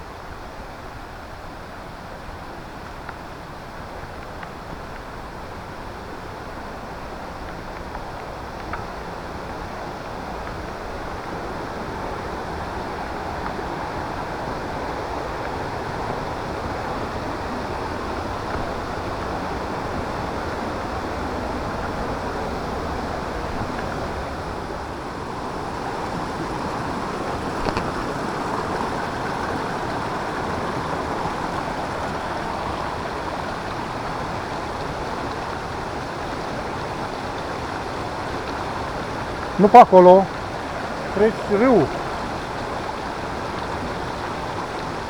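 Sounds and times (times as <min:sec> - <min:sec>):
river water rushing: 0:00.2 - 0:45.0.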